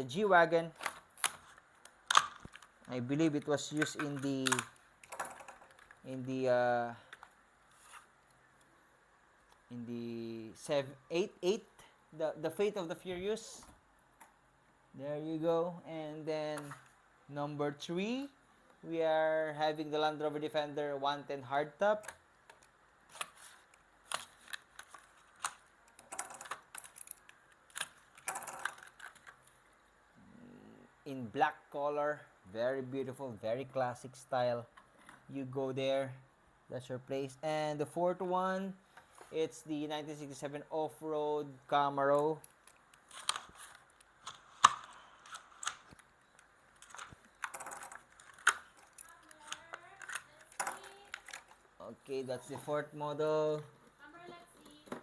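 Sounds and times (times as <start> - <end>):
plastic and cardboard crinkling: 23.0 - 29.6, 42.4 - 52.8
sharp plastic clicks: 42.4 - 51.6.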